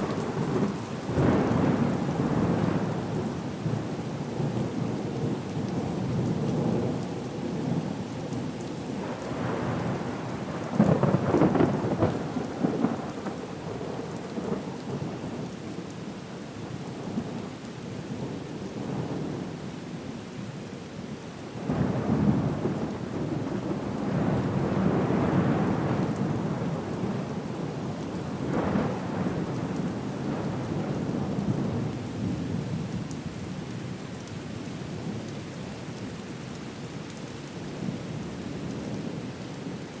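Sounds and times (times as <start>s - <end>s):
steady rain: 0.0s - 40.0s
rolling thunder: 9.0s - 14.5s.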